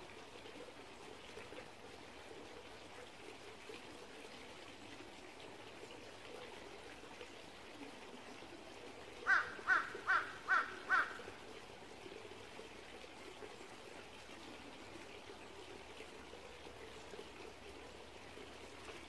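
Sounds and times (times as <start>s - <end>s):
stream trickling: 0.0s - 19.0s
bird calling: 9.3s - 11.2s.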